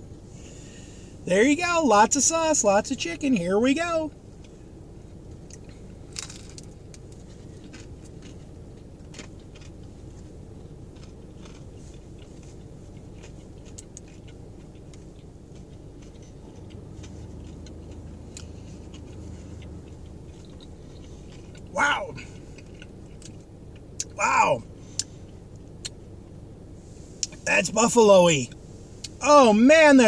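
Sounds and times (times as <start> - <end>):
low steady hum: 0.0 - 30.0
chewing with wet mouth clicks: 10.9 - 21.7, 22.4 - 24.2.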